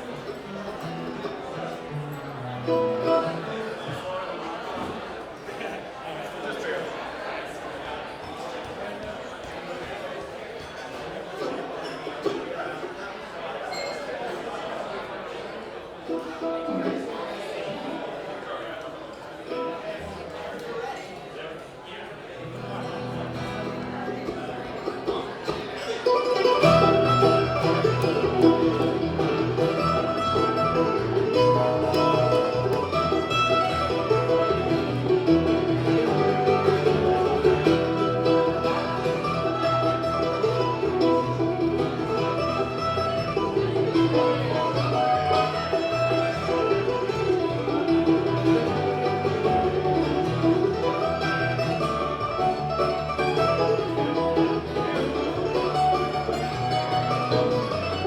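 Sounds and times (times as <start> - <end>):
guitar picking: 0.0 - 4.0, 22.4 - 58.0
banjo picking: 0.0 - 5.9, 10.6 - 13.0, 16.0 - 20.6, 22.4 - 58.0
bluegrass band playing: 0.0 - 6.7, 10.7 - 12.9, 14.3 - 20.8, 22.3 - 58.0.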